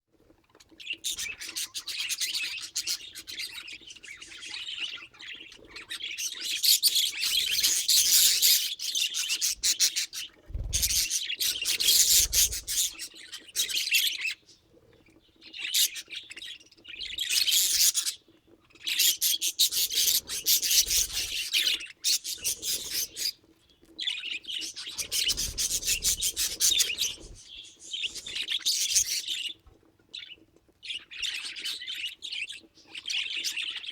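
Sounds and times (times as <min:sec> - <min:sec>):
budgerigars chattering: 0:00.4 - 0:14.5, 0:15.2 - 0:23.4, 0:24.0 - 0:29.6.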